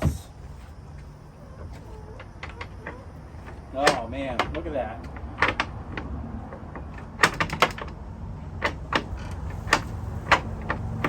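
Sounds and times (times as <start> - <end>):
sharp clicks and light knocks: 1.7 - 11.0.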